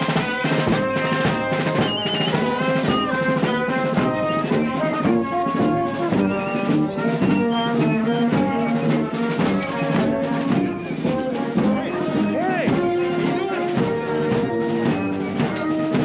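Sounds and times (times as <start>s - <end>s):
marching band playing: 0.0s - 16.0s.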